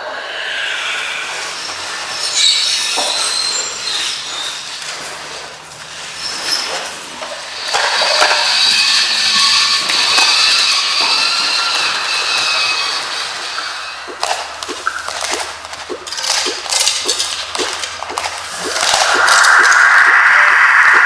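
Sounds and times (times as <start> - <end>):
pulleys and gears squealing: 0.8 - 14.1.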